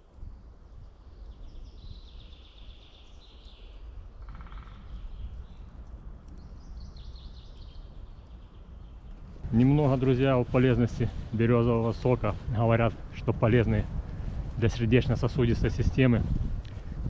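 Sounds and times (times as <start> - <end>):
songbirds trilling: 0.5 - 12.9.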